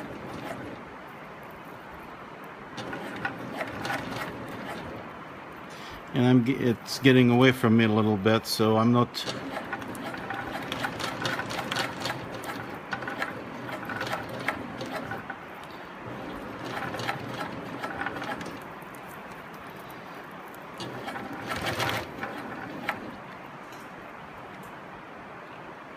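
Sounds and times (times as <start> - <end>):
sewing machine stitching: 0.0 - 0.9, 2.8 - 5.1, 9.1 - 19.9, 20.7 - 23.4.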